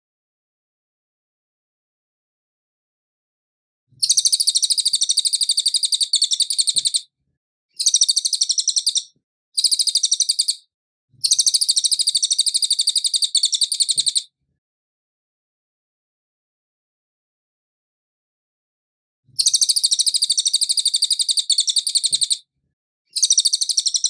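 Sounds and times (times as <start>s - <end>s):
songbird singing high trills: 4.0s - 7.0s, 7.8s - 10.6s, 11.2s - 14.3s, 19.4s - 22.4s, 23.1s - 24.0s.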